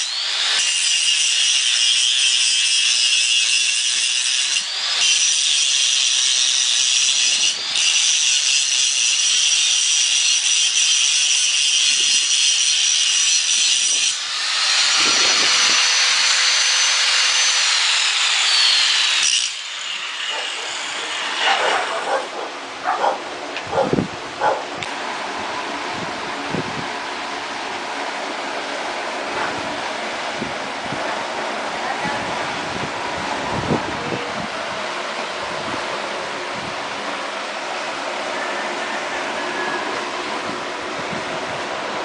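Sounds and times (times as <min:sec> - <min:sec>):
power grinder whining on metal: 0:00.0 - 0:25.0, 0:37.2 - 0:41.0.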